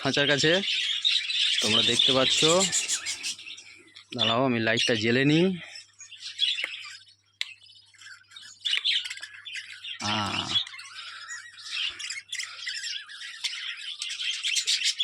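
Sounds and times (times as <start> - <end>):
budgerigars chattering and chirping: 0.0 - 15.0
budgerigar squawks: 1.4 - 3.6.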